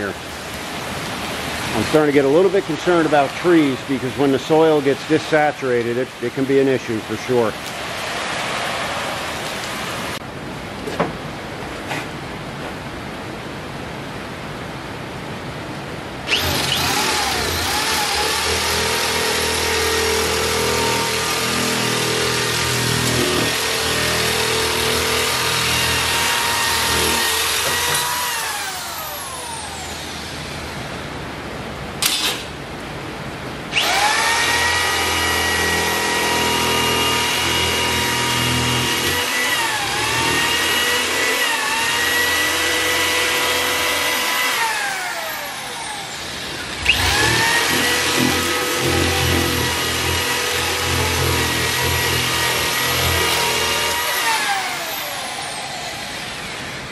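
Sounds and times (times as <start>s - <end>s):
electric drill drilling into metal: 16.3s - 30.4s, 32.0s - 32.5s, 33.7s - 56.6s.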